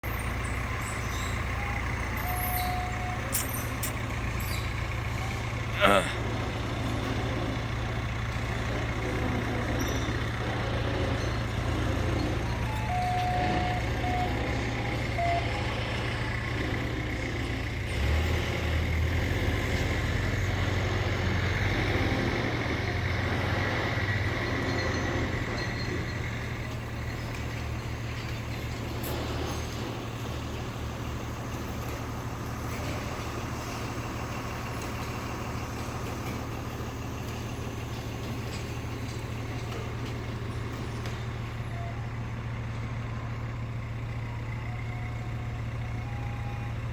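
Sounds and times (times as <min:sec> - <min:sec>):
heavy vehicle engine rumbling: 0:00.0 - 0:46.9
short beeps: 0:01.6 - 0:03.8, 0:12.6 - 0:15.9.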